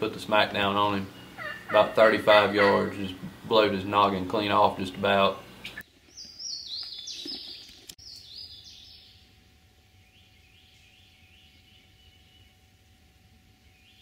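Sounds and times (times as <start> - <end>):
songbirds singing: 0.0 - 14.0.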